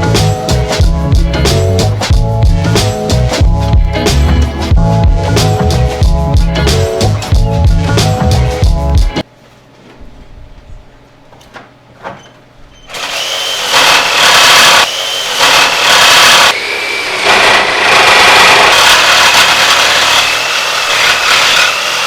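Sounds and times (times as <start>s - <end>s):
power tool whining: 12.9s - 22.0s.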